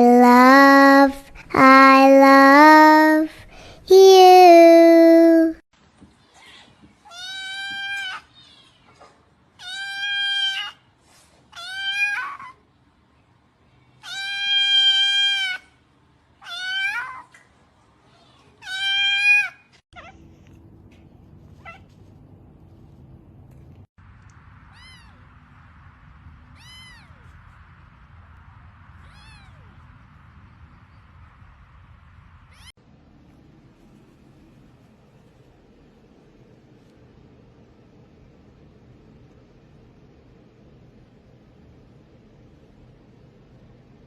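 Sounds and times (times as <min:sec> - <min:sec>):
cat meowing: 0:26.6 - 0:27.2.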